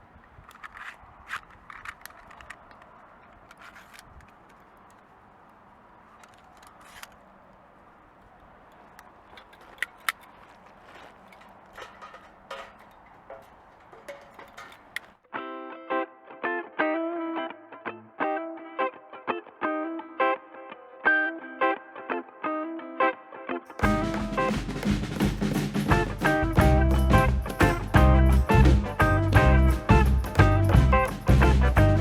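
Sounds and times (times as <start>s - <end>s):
faint background noise: 0.0s - 32.0s
light clicks and small rattles: 0.2s - 15.2s
distorted electric guitar music: 23.8s - 25.2s, 25.8s - 32.0s.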